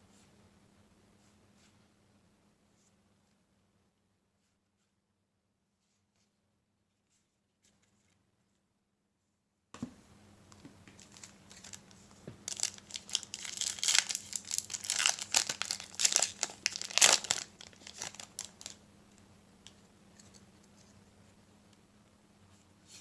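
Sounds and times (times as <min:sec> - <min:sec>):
wrapper crinkling and tearing: 0:10.9 - 0:18.8.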